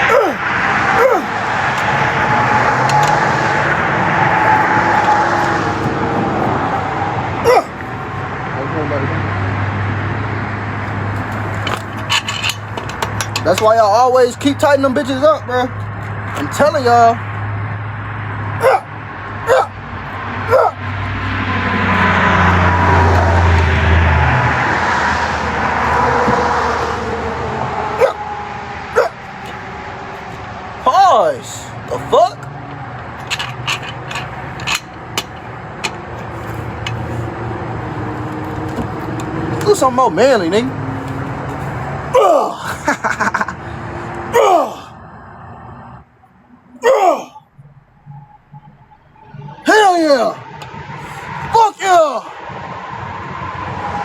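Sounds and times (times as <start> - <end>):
dog yipping: 0.0 - 0.4, 1.0 - 1.3, 7.5 - 7.8, 18.6 - 18.9, 19.5 - 19.8, 20.5 - 20.8, 28.0 - 28.2, 29.0 - 29.2
vehicle passing close by: 0.0 - 42.2, 42.8 - 46.2, 47.6 - 54.0.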